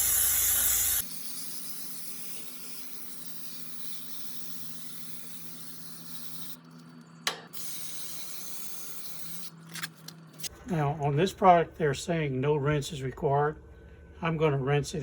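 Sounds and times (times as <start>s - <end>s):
aerosol can spraying: 0.0s - 6.6s, 7.6s - 9.5s.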